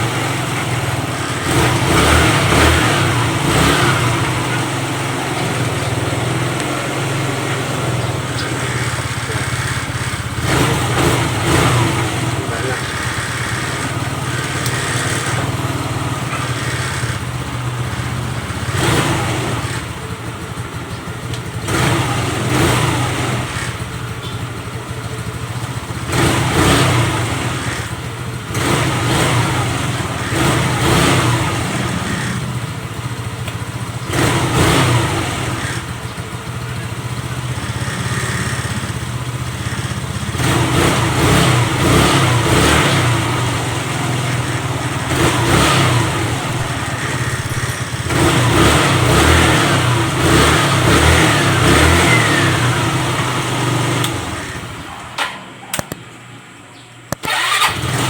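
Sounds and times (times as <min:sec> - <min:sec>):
motorcycle engine idling and revving: 0:00.0 - 0:58.0.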